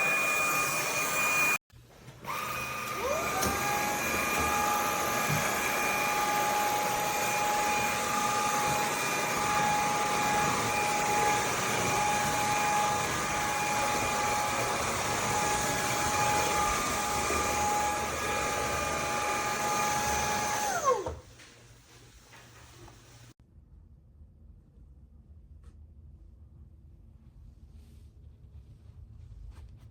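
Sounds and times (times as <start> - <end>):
stick vacuum motor whine: 0.0 - 1.6, 2.2 - 21.2
vacuum motor spinning down: 0.0 - 1.6, 2.3 - 21.2.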